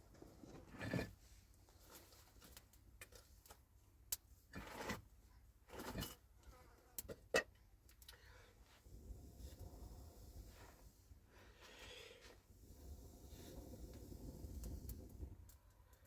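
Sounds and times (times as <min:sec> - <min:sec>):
rustling of things handled: 0:00.0 - 0:04.0.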